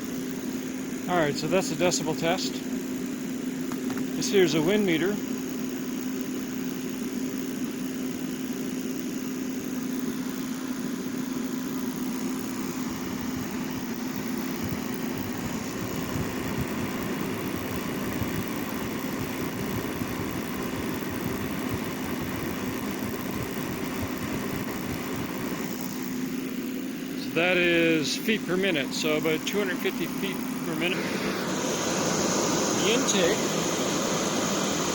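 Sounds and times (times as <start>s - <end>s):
propane heater humming: 0.0s - 34.9s
rush of air: 31.0s - 34.9s.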